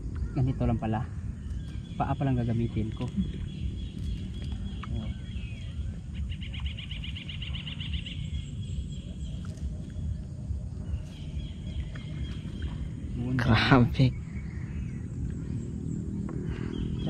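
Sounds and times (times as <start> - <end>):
low rumble: 0.0 - 17.0
bird trilling: 0.2 - 10.2.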